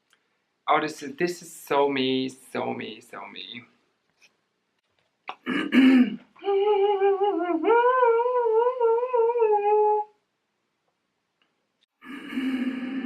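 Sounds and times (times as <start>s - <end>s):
woman humming a tune: 6.4s - 10.1s.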